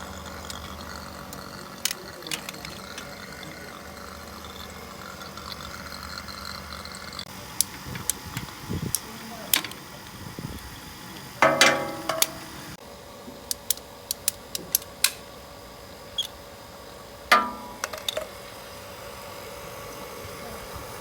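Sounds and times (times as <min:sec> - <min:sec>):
faint steady hum: 0:00.0 - 0:21.0
metal tools clanking: 0:00.4 - 0:03.2, 0:11.4 - 0:12.5.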